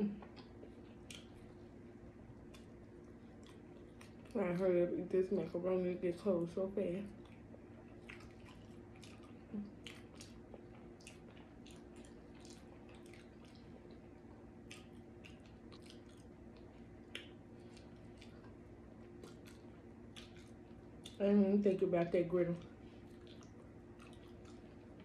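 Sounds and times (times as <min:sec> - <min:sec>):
low steady hum: 0:00.0 - 0:25.0
wet chewing mouth smacks: 0:00.2 - 0:01.5, 0:02.4 - 0:04.4, 0:07.2 - 0:21.2, 0:22.6 - 0:25.0.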